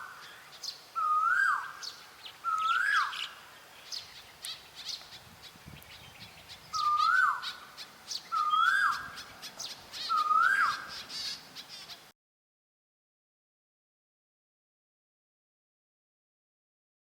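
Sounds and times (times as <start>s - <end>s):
bird whistled call: 0.0s - 5.2s, 5.8s - 12.0s
birds chirping: 0.0s - 12.1s.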